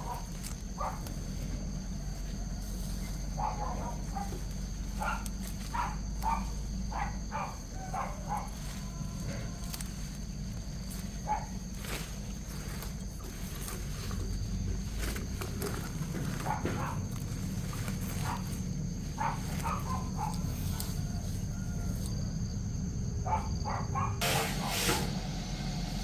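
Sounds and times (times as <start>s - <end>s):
chickens clucking: 0.0s - 13.1s
steady background hum: 0.0s - 26.0s.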